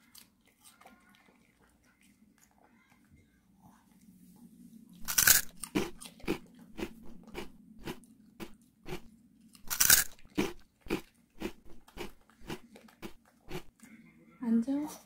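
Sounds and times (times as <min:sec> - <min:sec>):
dog crunching vegetables: 0:00.0 - 0:02.7, 0:05.0 - 0:13.8.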